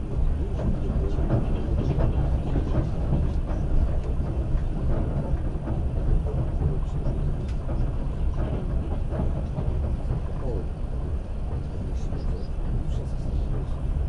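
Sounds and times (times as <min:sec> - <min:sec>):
train wheels rumbling on rail: 0:00.0 - 0:14.0
faint clicks: 0:07.4 - 0:07.8.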